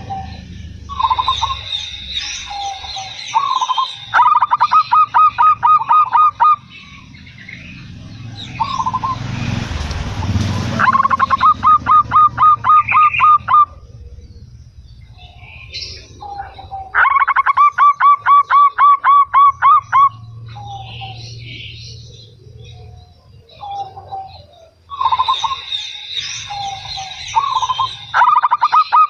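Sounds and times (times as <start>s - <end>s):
high bird whistle: 0.0s - 6.6s, 10.8s - 13.7s
dove cooing: 0.0s - 7.0s, 10.3s - 25.7s, 26.4s - 29.0s.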